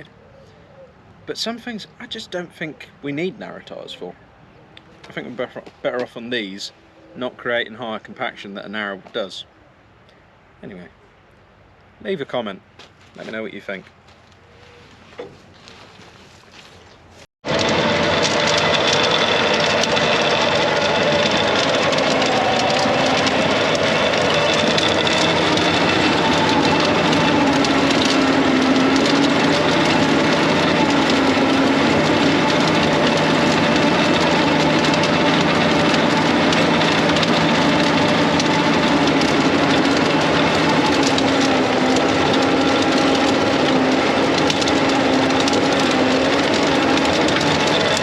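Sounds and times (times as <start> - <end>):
tractor engine under load: 4.8 - 9.3, 15.0 - 48.0
broad rattle and rumble: 17.4 - 48.0.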